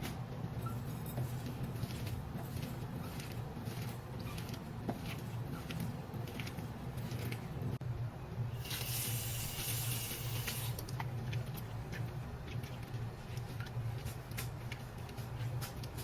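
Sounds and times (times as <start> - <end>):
steady low hum: 0.0 - 16.0
burst of hissing: 8.6 - 10.8.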